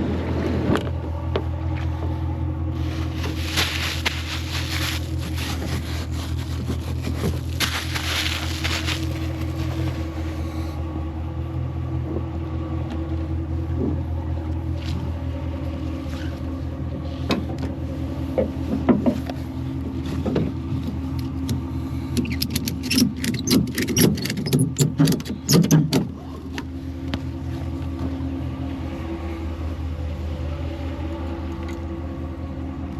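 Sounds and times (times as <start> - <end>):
truck engine running: 2.0 - 11.6.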